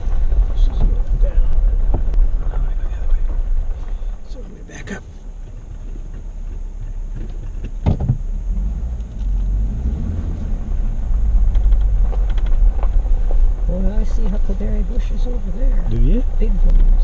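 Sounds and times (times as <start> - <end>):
car rumbling in reverse: 0.0 - 17.0.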